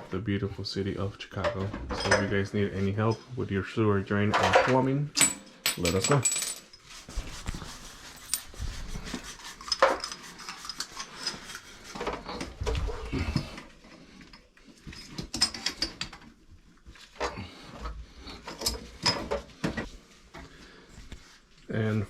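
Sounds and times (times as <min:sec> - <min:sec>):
metal tools and pipe fittings clinking: 0:01.5 - 0:02.4, 0:04.3 - 0:06.9, 0:08.1 - 0:08.6, 0:09.6 - 0:11.7, 0:14.3 - 0:16.2, 0:18.4 - 0:19.4.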